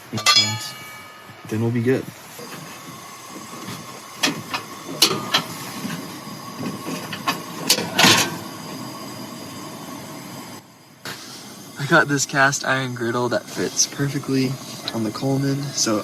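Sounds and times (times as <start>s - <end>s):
camp stove hissing: 0.0s - 0.6s, 1.4s - 16.0s
cookware knocking and clinking: 0.2s - 1.4s
short hissing burst: 1.9s - 16.0s.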